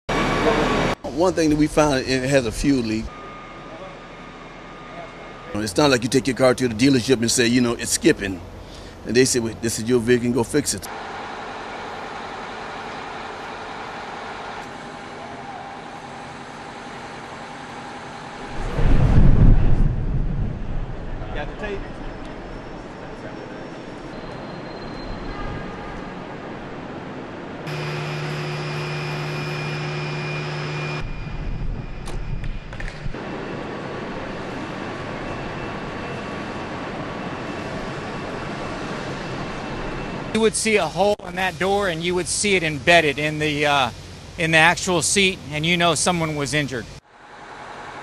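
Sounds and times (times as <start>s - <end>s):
steady mechanical hum: 0.1s - 48.0s
faint steady tones: 2.0s - 10.6s, 27.7s - 47.0s
mechanical drone: 27.7s - 40.4s.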